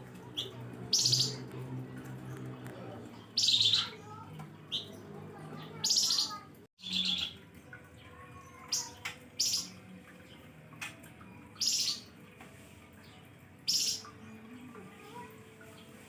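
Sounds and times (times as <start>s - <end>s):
songbird trilling: 0.4s - 1.5s, 3.4s - 4.0s, 11.6s - 12.0s, 13.7s - 14.1s.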